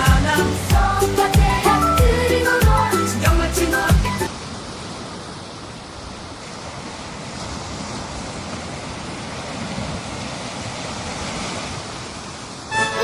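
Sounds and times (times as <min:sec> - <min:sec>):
ocean waves washing on beach: 0:04.3 - 0:13.0.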